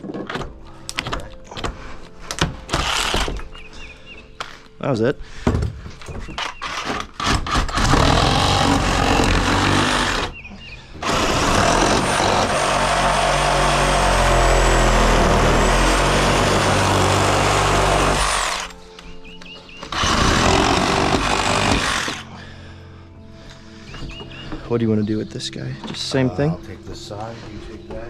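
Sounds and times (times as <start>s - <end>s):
reciprocating saw cutting: 6.6s - 10.4s, 11.0s - 18.8s, 19.9s - 22.3s.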